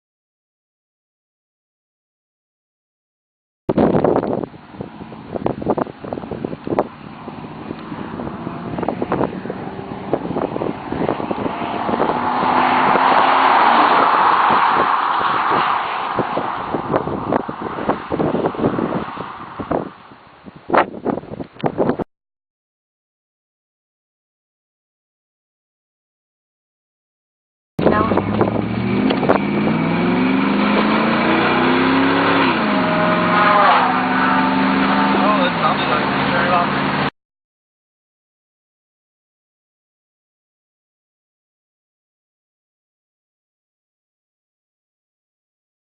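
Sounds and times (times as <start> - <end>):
road noise: 3.7 - 22.0, 27.8 - 37.1
wind buffeting microphone: 3.7 - 22.0, 27.8 - 32.8
pickup truck engine driving past: 6.2 - 20.1, 27.9 - 37.1.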